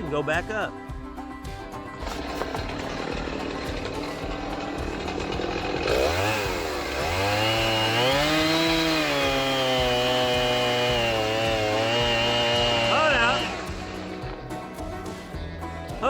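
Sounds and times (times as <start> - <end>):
chainsaw engine revving: 2.0 - 14.4.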